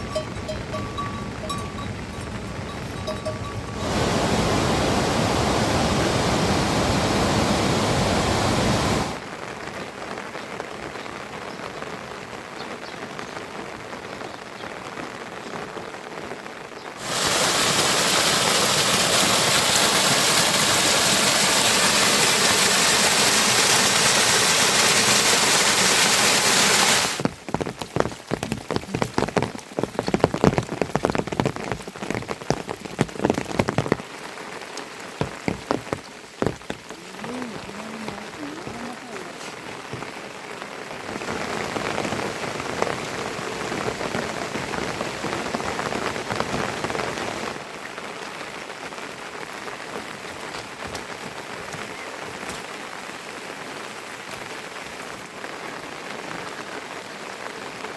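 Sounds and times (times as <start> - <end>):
rain falling: 0.0 - 57.9.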